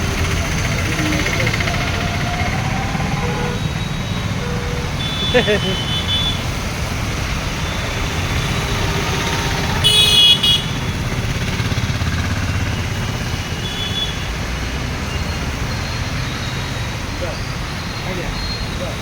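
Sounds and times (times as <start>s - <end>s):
road traffic rumble: 0.0s - 19.0s
short vehicle horn toot: 4.4s - 6.4s, 9.8s - 10.7s.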